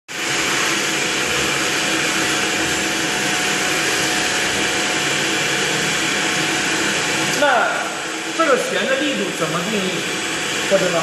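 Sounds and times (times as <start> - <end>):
pump tone: 0.1 - 8.9.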